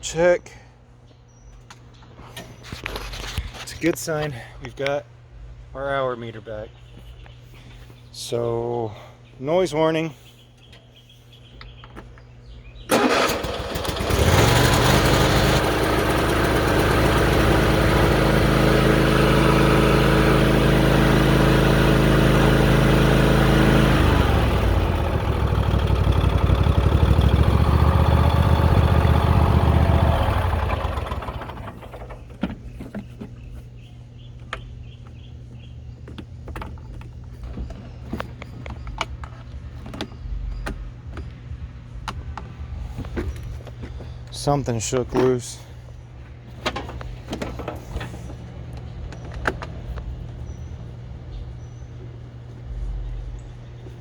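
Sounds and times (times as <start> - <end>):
lawn tractor engine running: 12.9 - 33.5.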